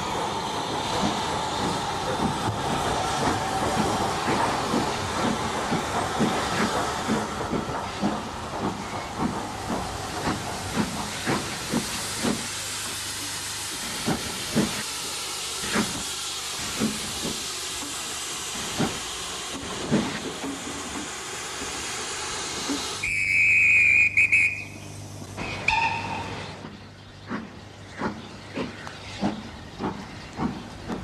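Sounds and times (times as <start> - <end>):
steam hiss: 0.0 - 26.7
steam locomotive chuffs: 0.0 - 31.0
loud steam whistle: 23.0 - 24.8, 25.6 - 26.4.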